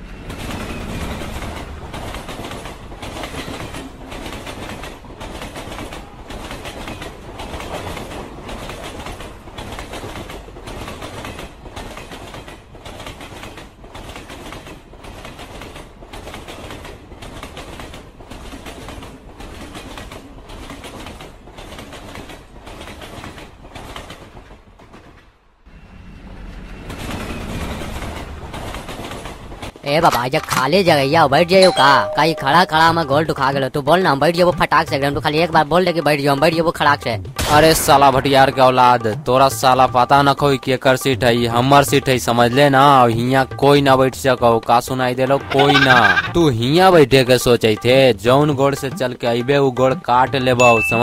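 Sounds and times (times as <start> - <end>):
wheels clattering over rail joints: 0.0 - 25.6, 26.7 - 31.6
train rumble inside carriage: 0.0 - 51.0.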